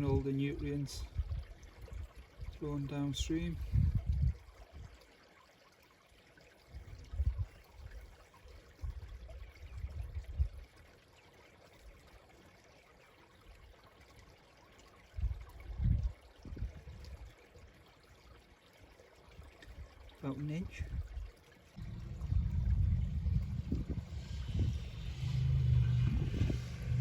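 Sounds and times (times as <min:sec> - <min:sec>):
stream trickling: 0:00.0 - 0:27.0
low rumbles: 0:21.8 - 0:27.0.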